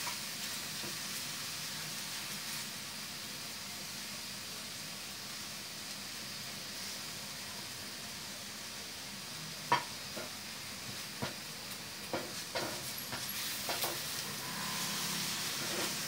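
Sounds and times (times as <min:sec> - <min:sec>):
food sizzling in oil: 0:00.0 - 0:16.0
wooden spatula scraping a pan: 0:12.2 - 0:16.0.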